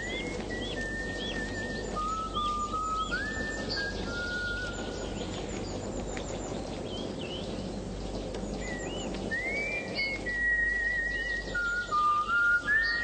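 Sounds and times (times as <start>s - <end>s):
person whistling a tune: 0.0s - 4.8s, 9.3s - 13.0s
outdoor background hum: 0.0s - 13.0s
small birds chirping: 0.0s - 13.0s.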